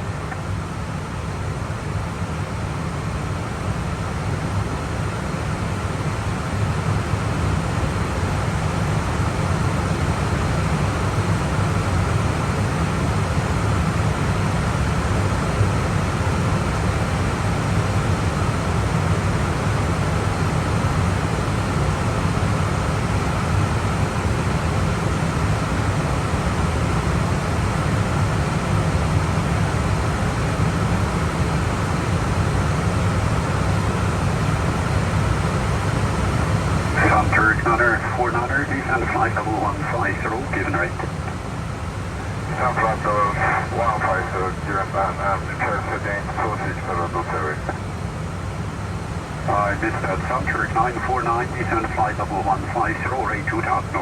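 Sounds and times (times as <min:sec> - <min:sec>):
low hum: 0:36.9 - 0:47.8, 0:49.4 - 0:54.0.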